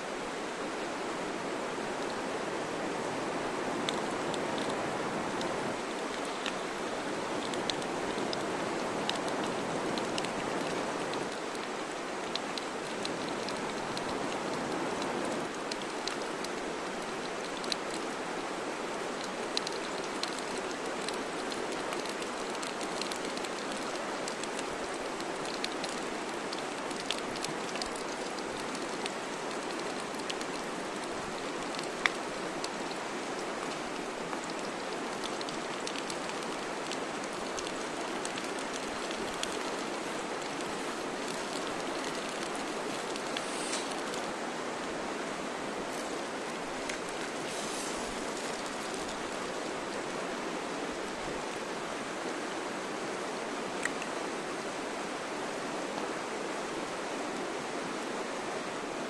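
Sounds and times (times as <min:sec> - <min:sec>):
campfire crackling and popping: 0:03.9 - 0:44.4, 0:45.7 - 0:50.0.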